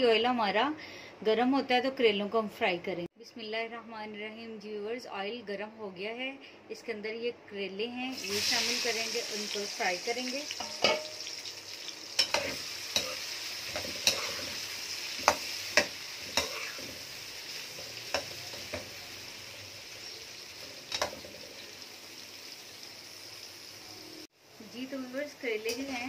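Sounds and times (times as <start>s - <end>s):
vegetables sizzling in oil: 8.1s - 26.0s.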